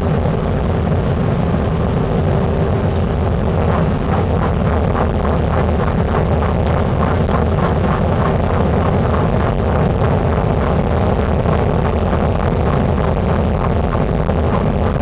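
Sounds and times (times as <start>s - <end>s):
jet engine and airflow rumble: 0.0s - 15.0s.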